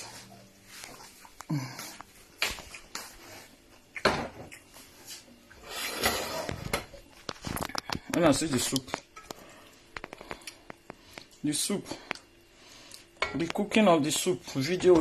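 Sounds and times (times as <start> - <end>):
spoon scraping a plate: 5.6 - 6.6.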